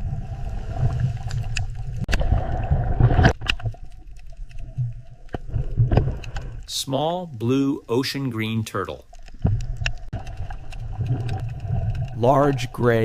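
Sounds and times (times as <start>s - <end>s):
clicks and pops: 1.2s - 6.7s, 9.1s - 12.7s.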